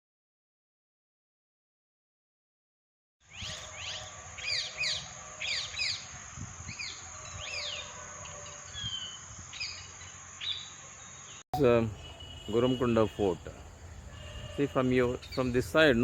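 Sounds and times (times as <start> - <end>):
wild birds chirping: 3.2 - 16.0
high-pitched insect drone: 3.9 - 11.4.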